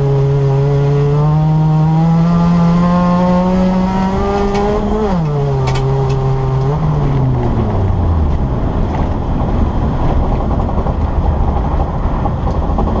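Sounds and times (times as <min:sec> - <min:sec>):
car engine from inside cabin: 0:00.0 - 0:13.0.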